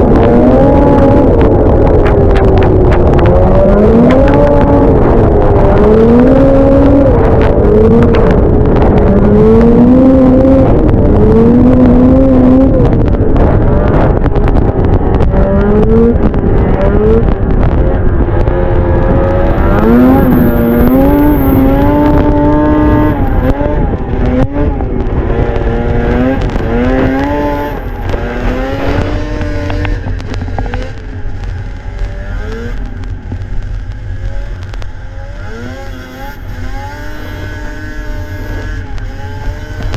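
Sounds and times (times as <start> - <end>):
snowmobile engine revving: 15.3 - 31.1, 31.8 - 32.9, 34.2 - 39.9.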